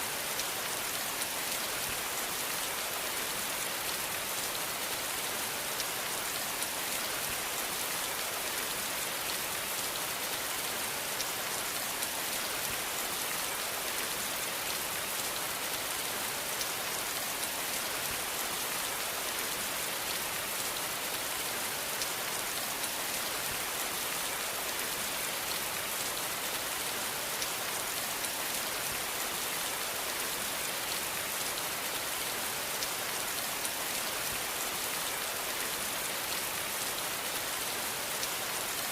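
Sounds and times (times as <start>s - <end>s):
steady rain hissing: 0.0s - 38.9s.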